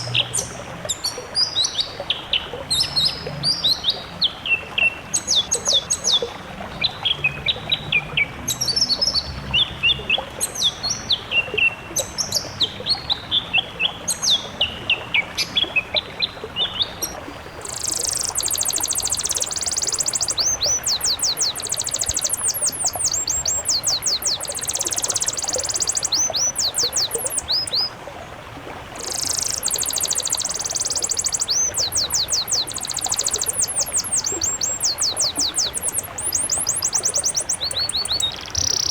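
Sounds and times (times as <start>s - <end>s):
songbirds singing: 16.6s - 38.9s.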